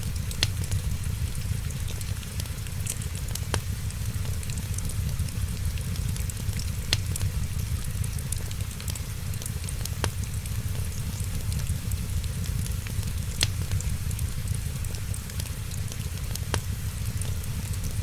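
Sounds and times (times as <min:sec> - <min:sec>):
wood fire crackling: 0:00.0 - 0:18.0
sharp fire pops: 0:00.1 - 0:01.0, 0:05.5 - 0:08.1, 0:12.8 - 0:15.4.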